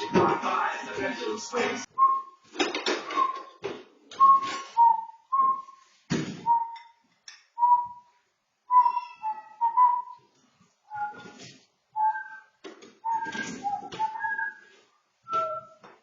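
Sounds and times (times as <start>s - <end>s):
person whistling a tune: 1.9s - 2.4s, 3.1s - 5.9s, 6.5s - 6.9s, 7.6s - 8.1s, 8.7s - 10.2s, 10.9s - 11.4s, 12.0s - 15.8s.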